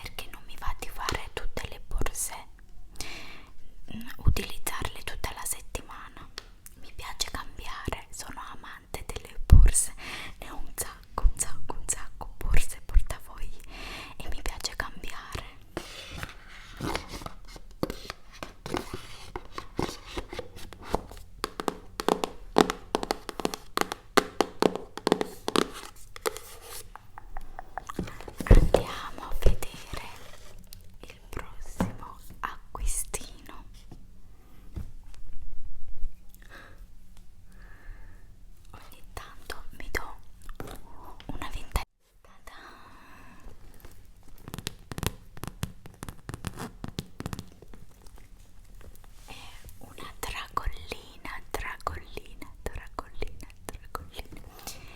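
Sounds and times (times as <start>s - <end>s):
fingers tapping objects: 20.8s - 28.3s.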